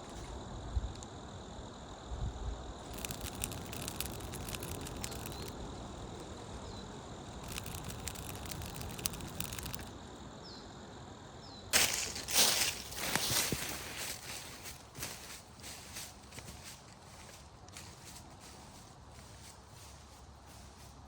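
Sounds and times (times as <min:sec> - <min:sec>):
light clicking and crackling: 0:02.8 - 0:05.6, 0:07.4 - 0:10.0.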